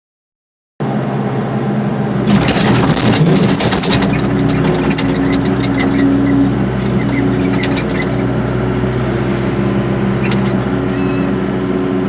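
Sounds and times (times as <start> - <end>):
diesel engine running: 0.8 - 12.0
fast clatter of sharp clicks: 2.3 - 6.1, 6.8 - 8.3.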